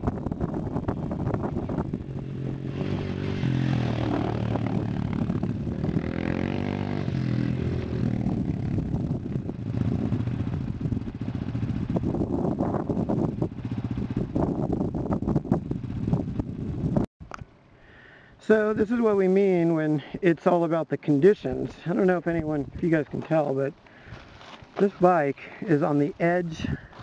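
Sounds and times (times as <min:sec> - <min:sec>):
dirt bike engine: 0:00.0 - 0:17.0.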